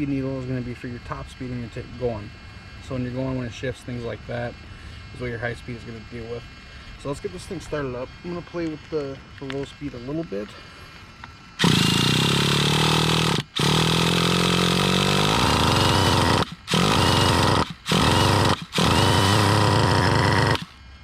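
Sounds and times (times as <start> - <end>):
electric starter cranking engine: 11.6 - 20.8.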